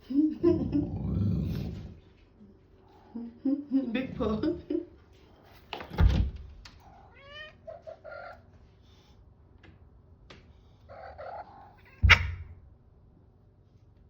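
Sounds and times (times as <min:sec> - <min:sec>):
cat meowing: 0:06.8 - 0:08.4, 0:10.9 - 0:12.3
loud thump: 0:12.0 - 0:12.6.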